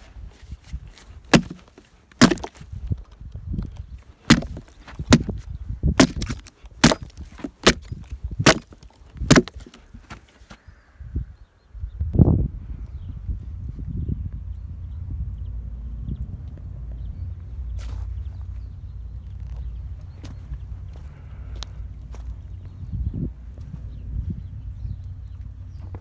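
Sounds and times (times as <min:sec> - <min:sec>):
hand tool chopping wood: 0:01.3 - 0:02.6, 0:04.3 - 0:05.4, 0:06.0 - 0:10.5.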